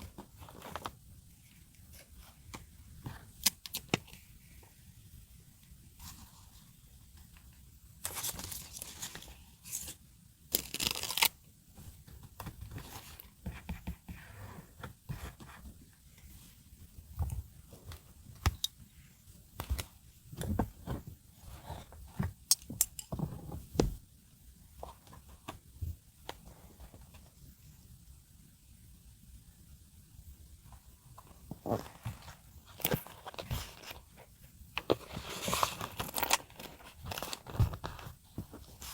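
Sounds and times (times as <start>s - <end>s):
tape tearing: 10.6s - 11.3s
paper rustling: 31.2s - 38.9s.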